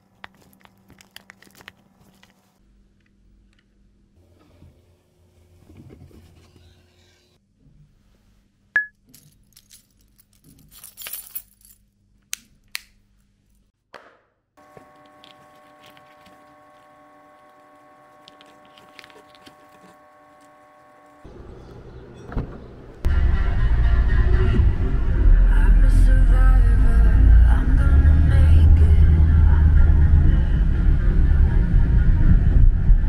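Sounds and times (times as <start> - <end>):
keys jangling: 9.1 - 11.9
steady hum with held tones: 14.6 - 22.2, 22.8 - 33.0
loud music: 23.1 - 32.3.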